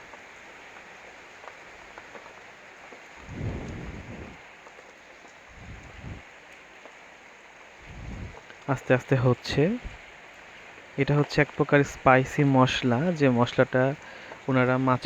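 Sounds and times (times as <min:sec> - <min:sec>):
low rumble: 0:03.2 - 0:04.4, 0:05.5 - 0:06.3.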